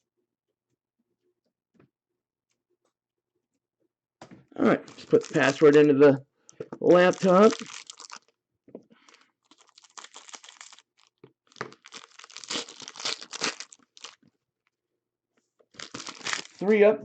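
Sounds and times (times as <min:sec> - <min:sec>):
plastic wrapping crinkling and tearing: 0:04.8 - 0:06.0, 0:06.8 - 0:08.3, 0:09.0 - 0:14.2, 0:15.7 - 0:16.7.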